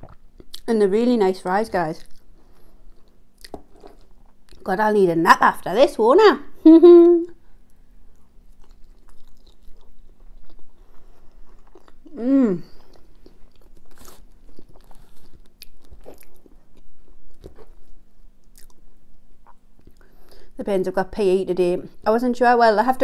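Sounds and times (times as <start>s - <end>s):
person chewing food: 2.0s - 4.7s, 7.6s - 20.4s
person humming mmm: 6.6s - 7.4s, 12.1s - 12.8s.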